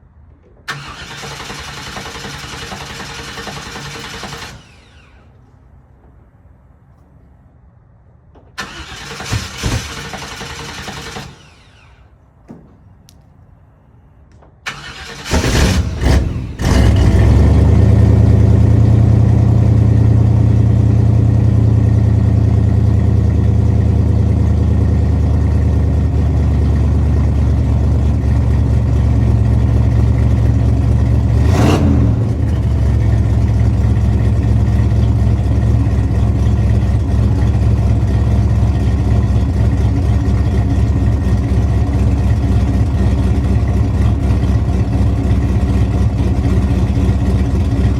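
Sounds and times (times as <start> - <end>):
pickup engine idling: 14.6 - 47.9.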